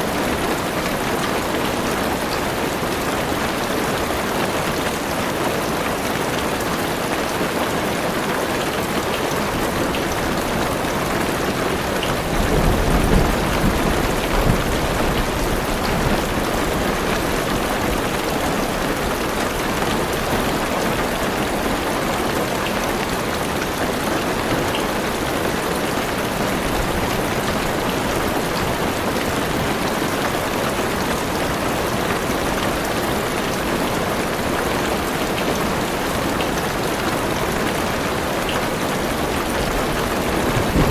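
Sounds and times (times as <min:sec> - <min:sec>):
heavy rain on car roof: 0:00.0 - 0:40.9
thunder rumble: 0:12.2 - 0:17.3, 0:39.6 - 0:40.9.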